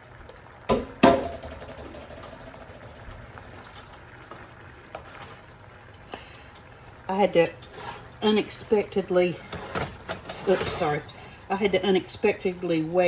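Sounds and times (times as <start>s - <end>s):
kitchenware clattering knocks: 0.7s - 2.3s.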